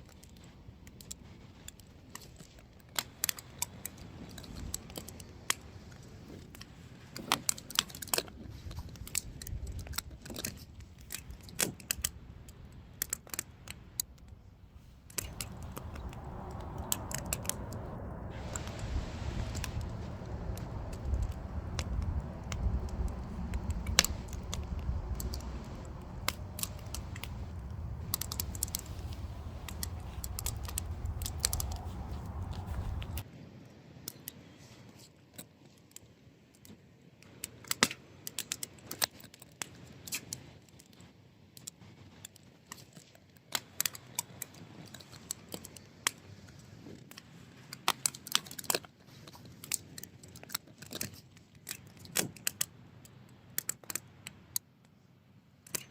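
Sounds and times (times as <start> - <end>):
wood fire crackling: 14.8 - 33.2
low rumble: 15.0 - 33.2
firewood pops and snaps: 19.4 - 33.2.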